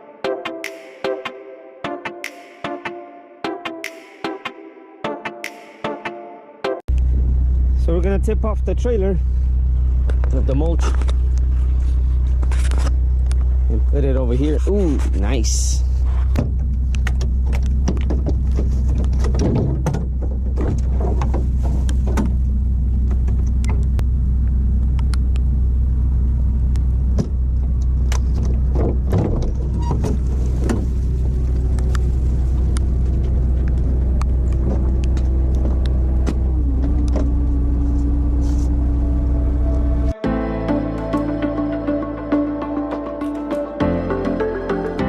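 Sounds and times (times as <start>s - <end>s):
truck engine running: 6.9s - 44.7s
knocks and clatters: 16.3s - 22.4s, 27.2s - 32.0s
hydraulic whine: 29.7s - 42.5s.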